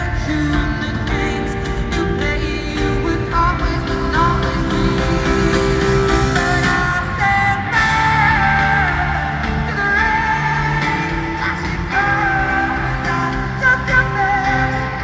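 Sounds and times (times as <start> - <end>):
live band playing: 0.0 - 15.0
woman singing a pop ballad: 0.0 - 15.0.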